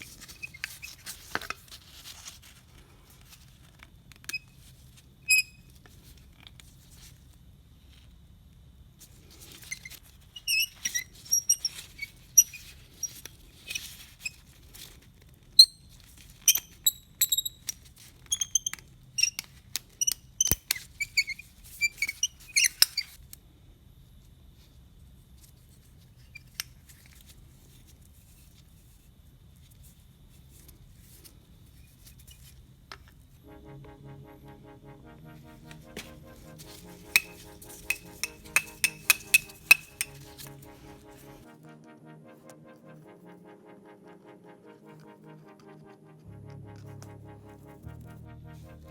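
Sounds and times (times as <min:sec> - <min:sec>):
tools and metal parts clicking: 0:37.2 - 0:40.2.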